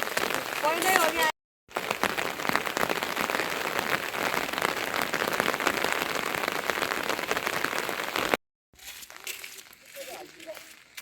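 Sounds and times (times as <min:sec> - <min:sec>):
heavy rain falling: 0:00.0 - 0:08.4.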